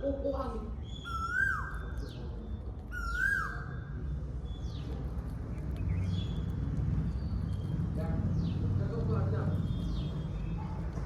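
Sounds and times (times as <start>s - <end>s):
bird calling: 0.9s - 2.1s.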